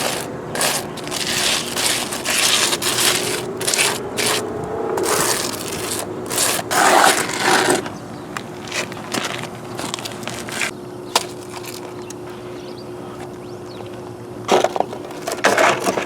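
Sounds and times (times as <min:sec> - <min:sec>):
wet concrete scraped over stone: 0:00.0 - 0:07.9.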